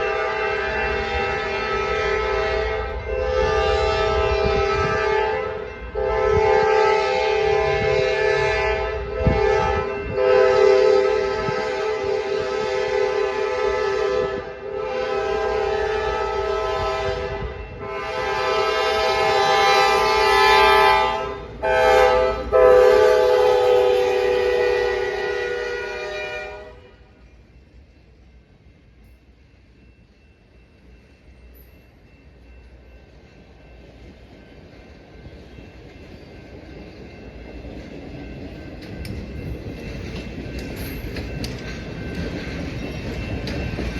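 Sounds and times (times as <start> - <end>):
train horn blasts: 0.0 - 27.2.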